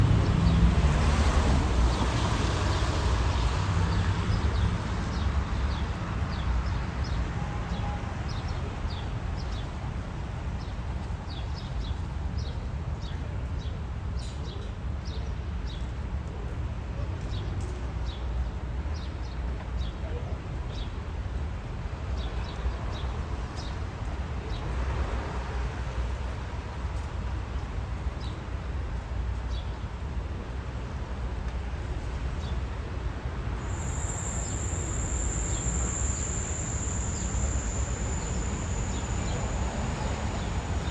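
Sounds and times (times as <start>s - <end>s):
train rumbling past: 0.0s - 10.9s, 33.1s - 40.9s
short high chirps: 33.6s - 40.9s.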